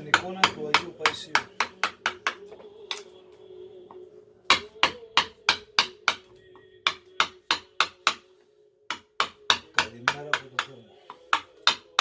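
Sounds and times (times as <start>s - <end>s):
mallet striking chisel into wood: 0.0s - 2.5s, 4.5s - 8.3s, 8.9s - 12.0s.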